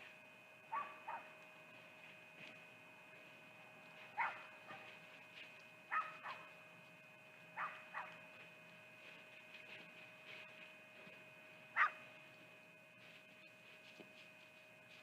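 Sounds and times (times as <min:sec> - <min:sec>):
distant animal barking: 0:00.7 - 0:01.4, 0:04.1 - 0:04.9, 0:05.9 - 0:06.6, 0:07.5 - 0:08.3, 0:11.7 - 0:12.1.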